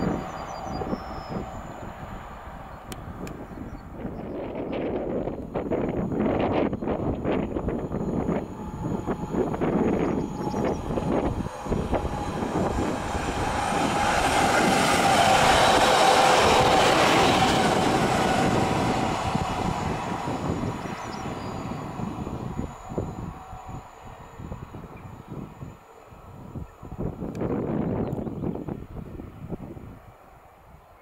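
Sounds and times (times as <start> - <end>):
train wheels rumbling on rails: 0.0 - 30.8
steady tone: 5.1 - 25.6.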